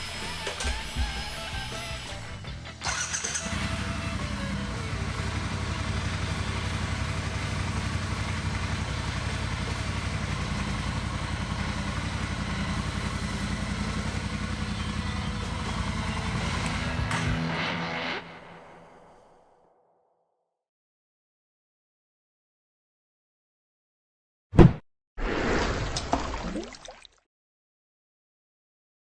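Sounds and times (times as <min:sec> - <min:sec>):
motorcycle engine idling: 0:00.0 - 0:17.7.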